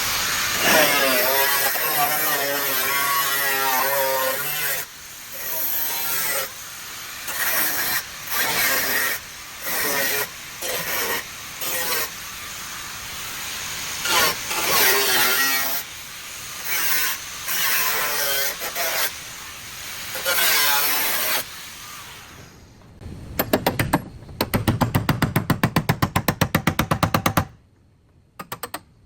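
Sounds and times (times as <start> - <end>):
bodywork tool rasping on metal: 0.6 - 12.2, 14.0 - 15.9, 16.6 - 19.2.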